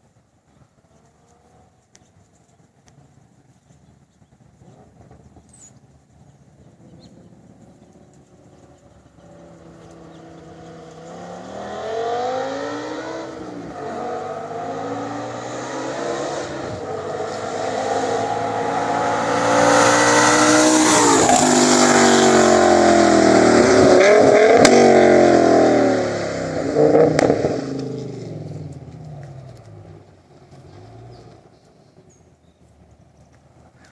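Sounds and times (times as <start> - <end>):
car engine accelerating: 6.8 - 32.1.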